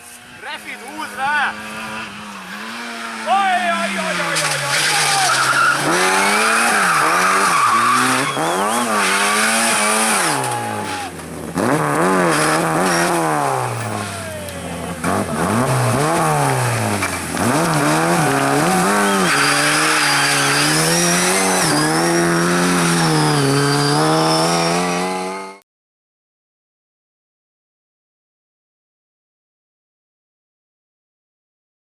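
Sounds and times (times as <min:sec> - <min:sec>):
race car engine revving: 0:00.0 - 0:25.6
tyres squealing: 0:00.4 - 0:24.9.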